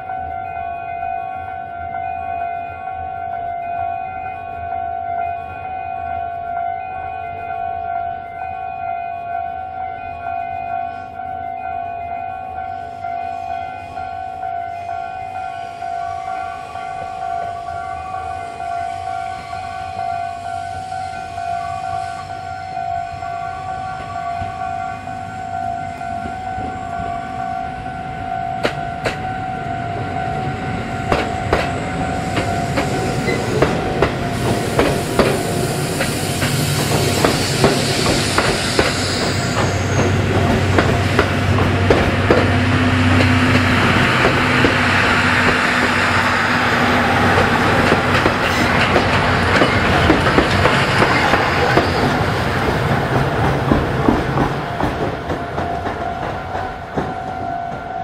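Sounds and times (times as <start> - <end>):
train wheels clacking over rail joints: 28.6 - 29.3, 31.0 - 58.0.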